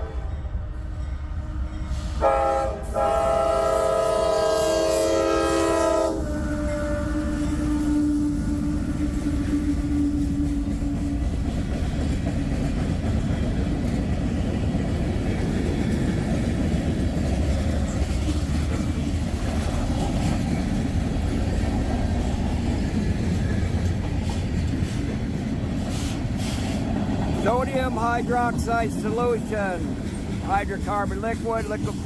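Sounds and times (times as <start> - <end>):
locomotive horn: 0.0 - 11.0
train cars rumbling past: 0.0 - 32.0.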